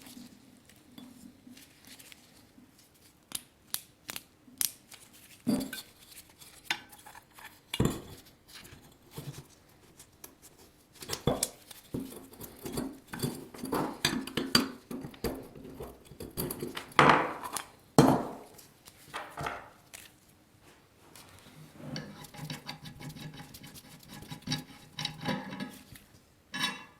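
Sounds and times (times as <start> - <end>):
tools clinking and tapping: 11.0 - 18.6, 24.2 - 26.9.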